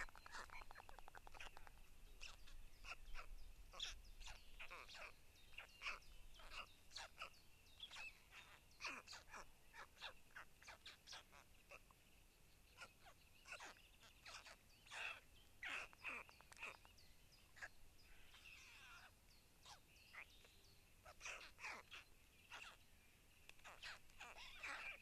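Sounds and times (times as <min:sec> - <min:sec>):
faint bird chirps: 0:00.0 - 0:25.0.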